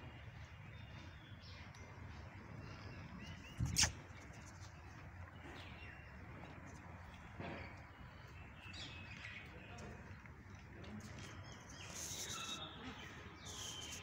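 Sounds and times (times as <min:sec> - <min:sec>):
bird chirps: 0:11.4 - 0:14.0.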